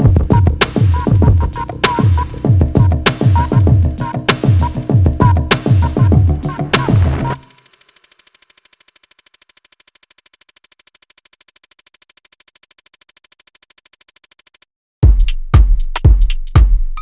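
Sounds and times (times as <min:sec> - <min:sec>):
loud kick-drum beats: 0:00.0 - 0:07.5, 0:15.0 - 0:17.0
fast ticking electronic pulse: 0:00.0 - 0:14.6.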